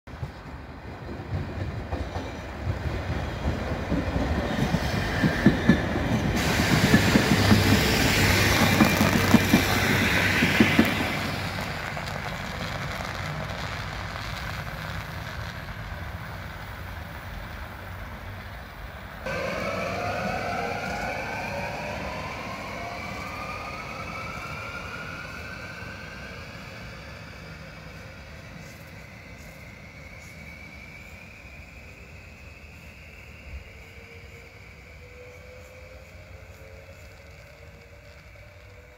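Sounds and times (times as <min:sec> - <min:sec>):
train rumble: 0:00.1 - 0:38.9
electric train motors whining: 0:19.3 - 0:38.9.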